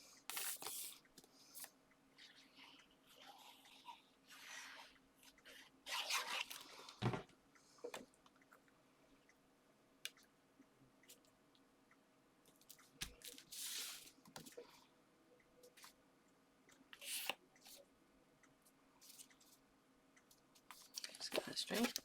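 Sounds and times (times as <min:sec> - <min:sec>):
paper rustling and crinkling: 0:20.7 - 0:22.0.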